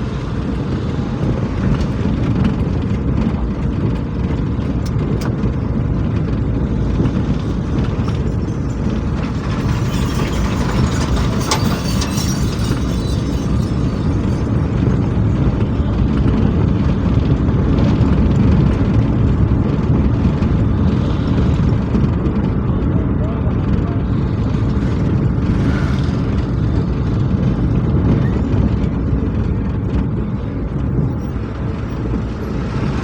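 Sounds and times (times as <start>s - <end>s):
motor vehicle rumbling: 0.0s - 33.0s.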